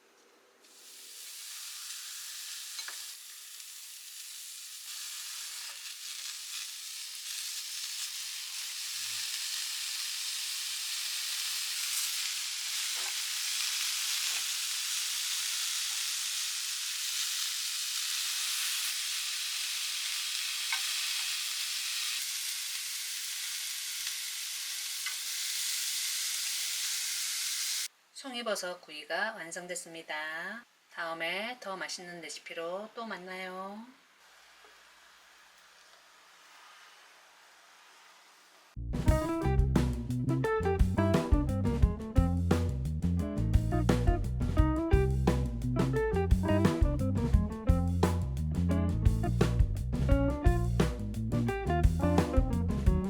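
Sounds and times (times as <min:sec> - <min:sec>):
mushrooms sizzling in a frying pan: 0:00.7 - 0:27.9.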